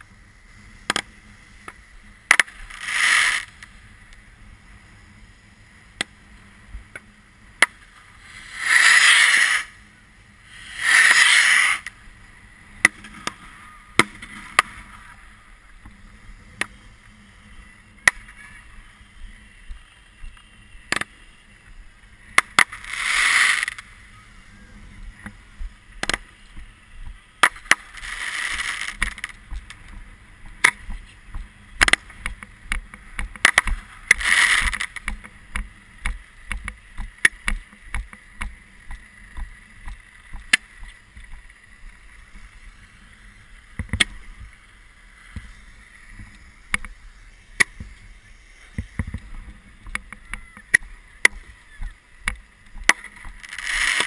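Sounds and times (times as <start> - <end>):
fireworks rushing hisses: 0.0 - 54.0
fireworks bangs and cracks: 27.4 - 29.7, 33.2 - 35.1, 52.7 - 54.0.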